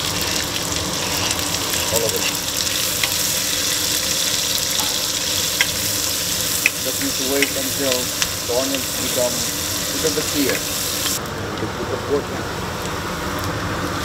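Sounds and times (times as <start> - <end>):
meat sizzling in hot oil: 0.0 - 11.2.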